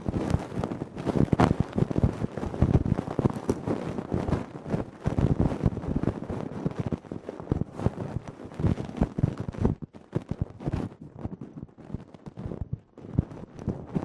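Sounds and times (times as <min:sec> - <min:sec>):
ear pick scratching: 0:00.0 - 0:03.9.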